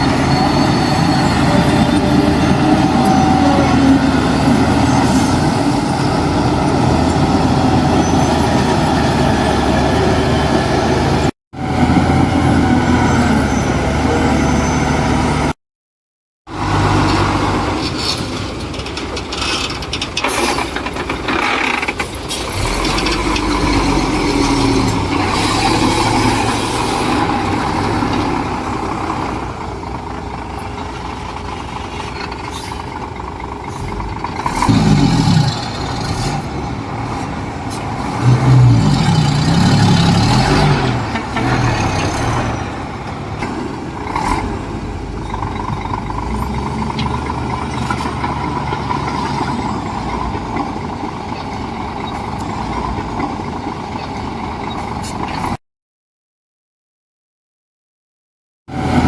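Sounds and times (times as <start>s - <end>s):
diesel earthmoving engines: 0.0s - 15.6s, 16.5s - 55.6s, 58.7s - 59.0s.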